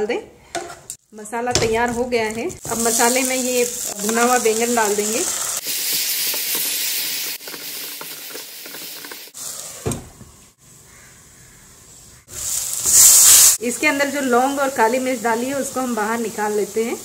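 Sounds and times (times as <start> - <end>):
spatula scraping and stirring: 1.6 - 9.8
eggplant sizzling in hot oil: 1.6 - 9.9, 12.2 - 17.0
loud burst of hissing: 12.2 - 13.6.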